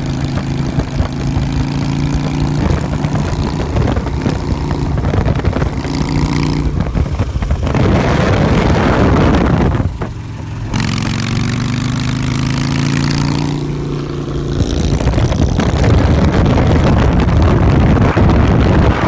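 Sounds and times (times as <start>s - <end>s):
motorcycle engine revving: 0.0s - 19.0s
loud rushing noise: 6.6s - 10.0s, 14.6s - 19.0s.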